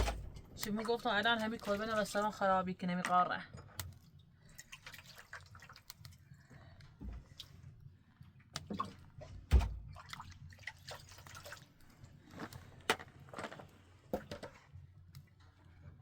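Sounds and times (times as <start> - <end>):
water dripping and splashing: 0.2 - 2.5, 3.7 - 7.8, 8.4 - 14.5.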